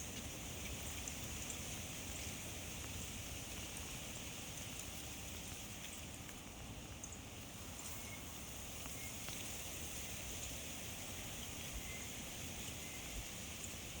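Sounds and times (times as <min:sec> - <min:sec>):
steady high hiss: 0:00.0 - 0:14.0
light ticks: 0:02.2 - 0:06.4.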